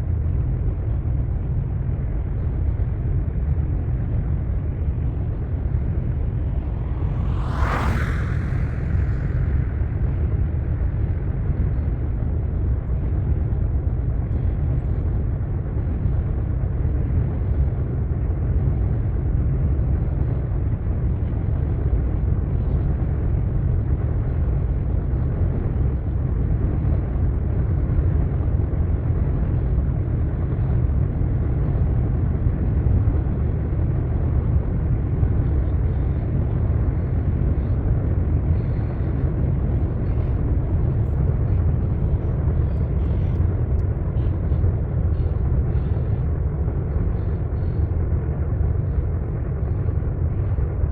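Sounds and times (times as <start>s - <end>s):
freight train rumbling by: 3.6s - 12.3s, 35.5s - 50.9s.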